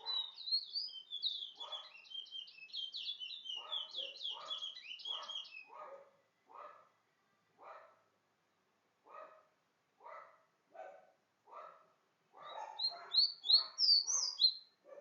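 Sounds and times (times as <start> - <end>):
dog barking: 0.0 - 0.4, 1.6 - 2.0, 3.6 - 6.9, 7.6 - 8.1, 9.0 - 15.0
small bird chirping: 0.0 - 6.0, 12.4 - 14.8.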